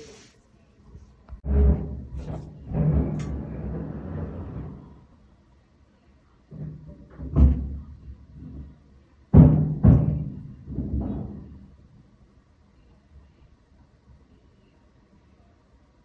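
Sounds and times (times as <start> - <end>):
booming construction thuds: 9.3 - 11.7.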